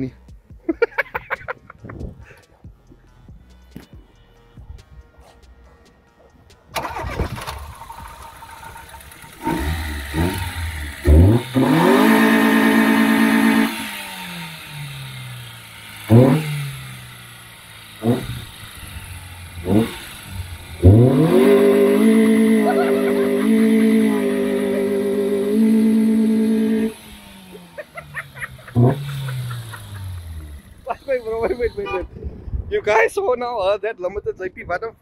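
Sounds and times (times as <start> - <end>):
car engine revving to limiter: 6.8 - 32.0.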